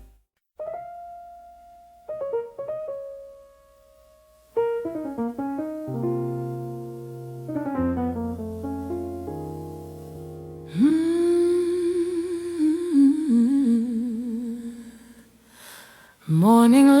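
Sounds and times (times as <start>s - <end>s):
slow solo piano: 0.0s - 12.4s.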